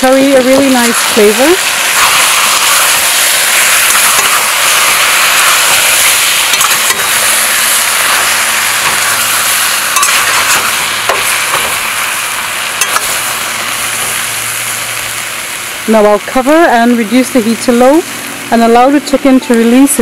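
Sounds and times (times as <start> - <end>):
chicken sizzling in a pot: 0.0 - 20.0.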